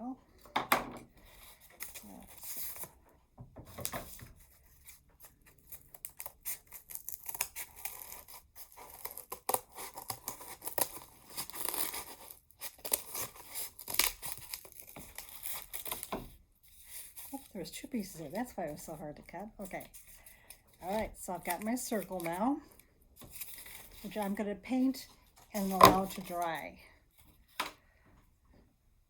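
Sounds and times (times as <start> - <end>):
cardboard being cut: 6.0 - 17.5.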